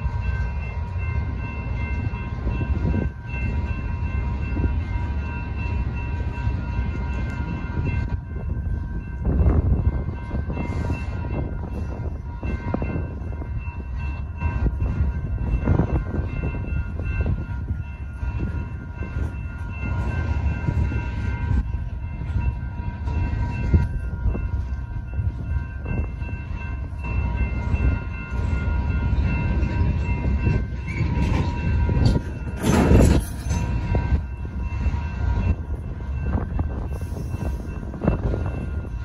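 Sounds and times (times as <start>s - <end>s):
crossing signal bells ringing: 0.0s - 39.0s
train wheels clattering on rails: 0.0s - 39.0s.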